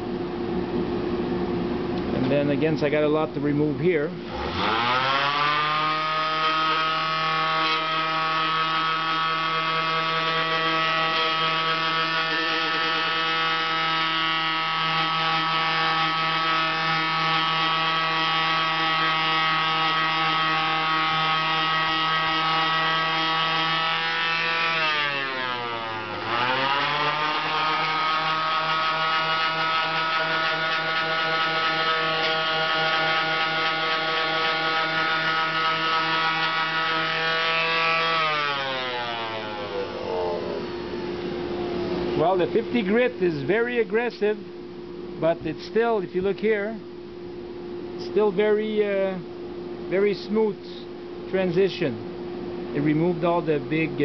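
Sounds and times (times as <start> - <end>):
orbital sander rasping: 4.3 - 40.7.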